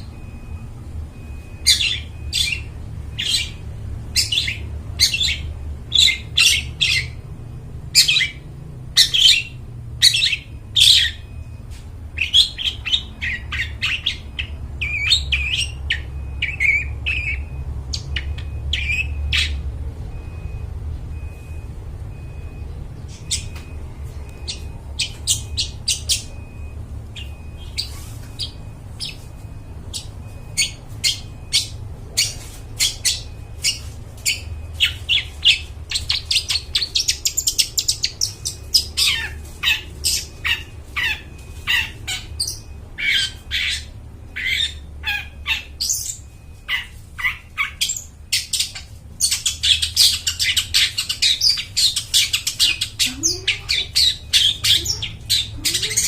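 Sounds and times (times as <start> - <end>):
bird chattering song: 1.2 - 7.3, 8.0 - 11.4, 12.2 - 19.6, 22.2 - 56.0.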